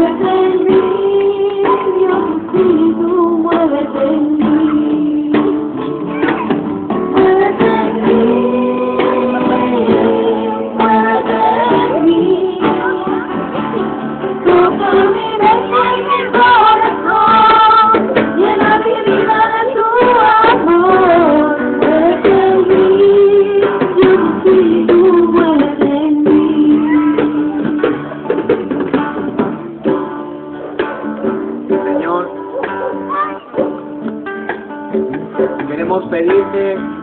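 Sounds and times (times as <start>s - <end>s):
voices singing: 0.0s - 28.8s
guitar accompaniment: 0.0s - 37.0s.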